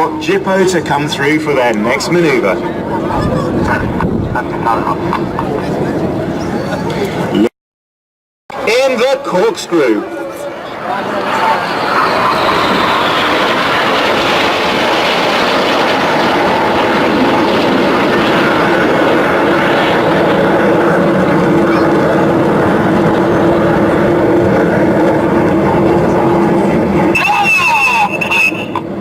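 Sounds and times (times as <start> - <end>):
jets flying past: 9.5 - 29.0.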